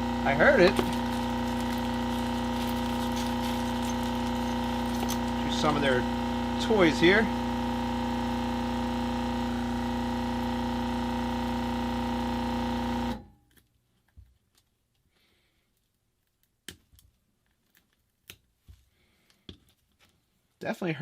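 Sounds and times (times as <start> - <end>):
heat gun blowing: 0.0 - 11.2.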